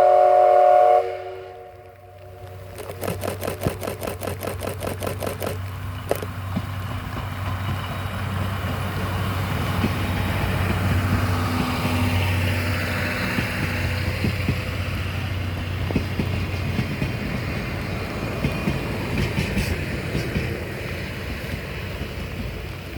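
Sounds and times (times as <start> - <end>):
coaches rumbling on rails: 0.0 - 22.9
steam locomotive exhaust chuffing: 2.3 - 22.9
sharp wheel click: 2.7 - 6.3.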